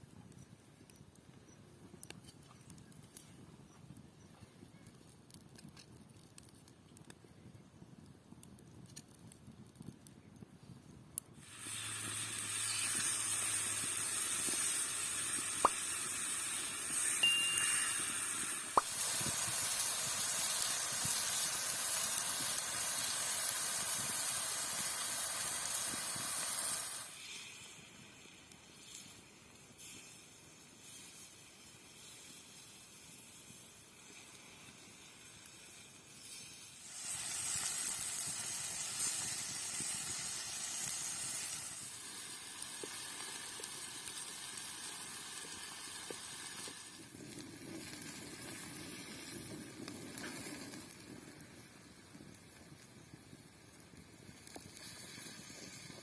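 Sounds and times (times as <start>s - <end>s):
chicken sizzling in a pan: 11.4s - 56.0s.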